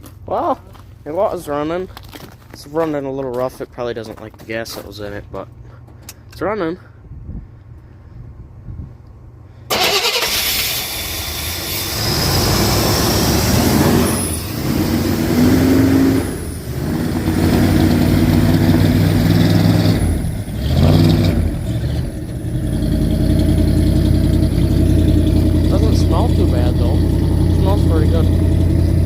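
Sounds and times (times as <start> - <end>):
car engine starting and running rough: 9.7 - 29.0.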